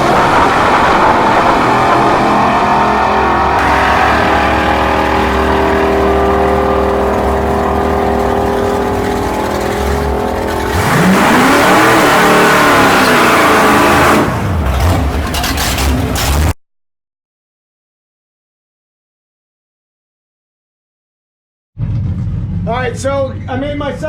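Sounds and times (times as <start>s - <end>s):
car engine revving: 0.0s - 16.6s.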